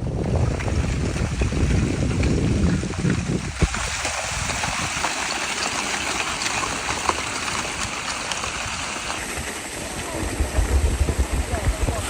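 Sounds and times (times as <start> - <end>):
steady rushing hiss: 3.5 - 12.0.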